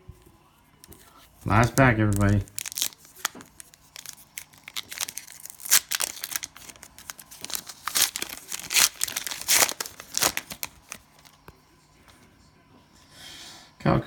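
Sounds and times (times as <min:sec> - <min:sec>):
cellophane wrapper crinkling and tearing: 0:00.9 - 0:11.4.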